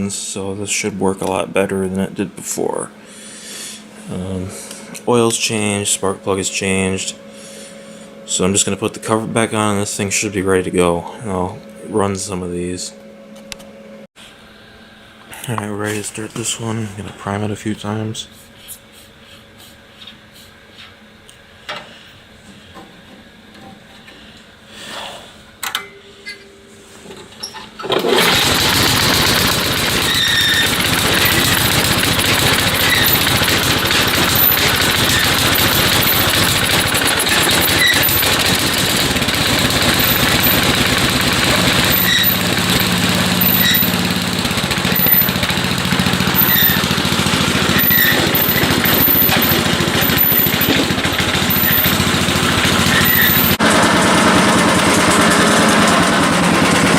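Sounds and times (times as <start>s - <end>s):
snowblower engine starting and running: 27.8s - 56.9s.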